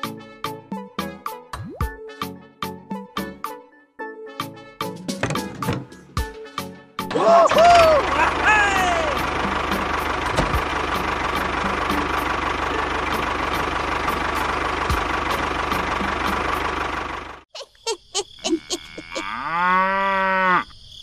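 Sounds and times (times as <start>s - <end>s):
tractor engine running: 5.2s - 6.2s, 7.3s - 17.5s
cow mooing: 18.8s - 20.7s.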